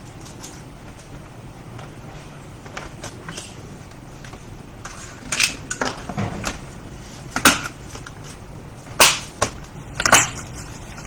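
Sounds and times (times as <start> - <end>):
clicks and knocks: 5.7 - 6.8.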